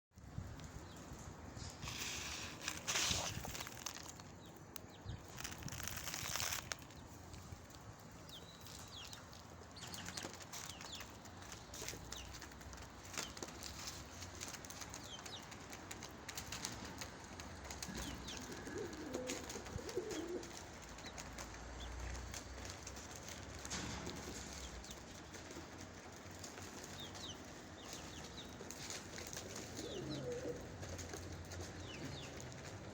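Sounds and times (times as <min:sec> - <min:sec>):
pigeons cooing: 0:17.8 - 0:20.7, 0:29.3 - 0:32.4.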